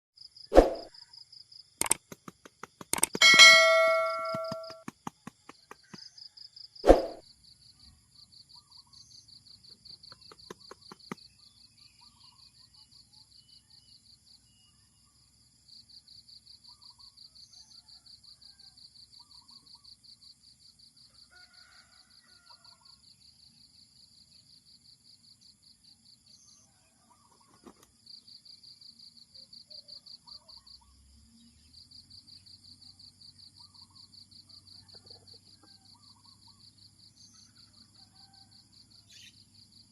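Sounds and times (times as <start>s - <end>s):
faint bird chirps: 6.9s - 15.3s, 26.2s - 32.7s, 33.3s - 39.6s.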